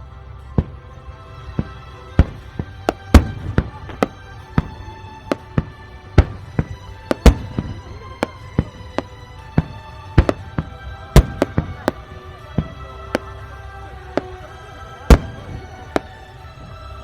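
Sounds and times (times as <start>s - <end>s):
fireworks bangs: 0.0s - 17.0s
music playing: 0.0s - 17.0s.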